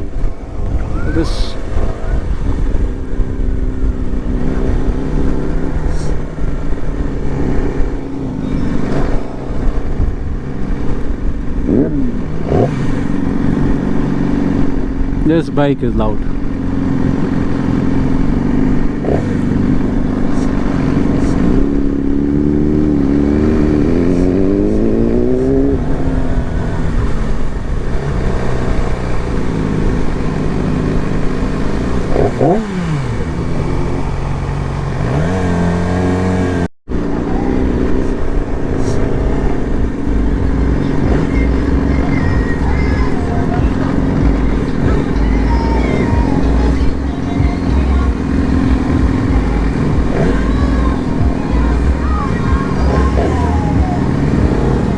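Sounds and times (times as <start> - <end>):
motorcycle engine revving: 0.0 - 54.9
motorcycle engines idling: 0.0 - 54.9.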